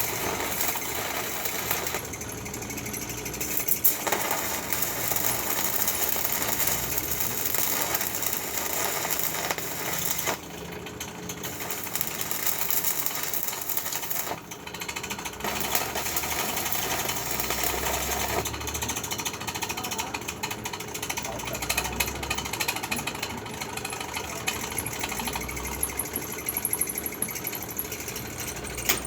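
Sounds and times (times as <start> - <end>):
welding arc crackling and buzzing: 0.0 - 20.2.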